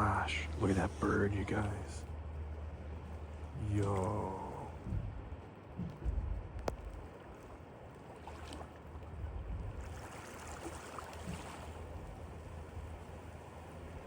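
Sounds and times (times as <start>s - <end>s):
blizzard wind buffeting microphone: 4.2s - 7.2s.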